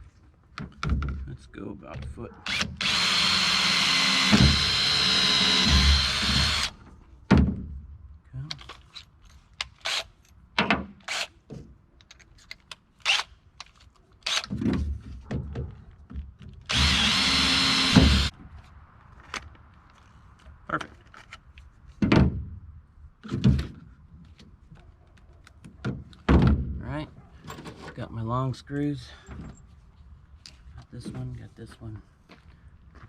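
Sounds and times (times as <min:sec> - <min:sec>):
power drill running: 0:02.5 - 0:06.8, 0:16.7 - 0:18.3.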